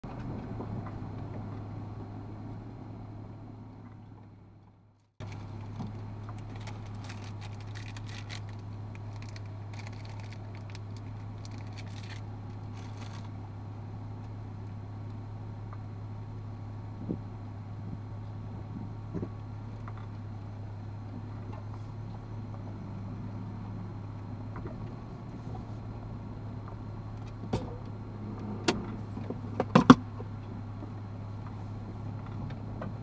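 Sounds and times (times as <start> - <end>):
car engine idling: 0.0 - 33.0
crackles and clicks: 5.0 - 13.4.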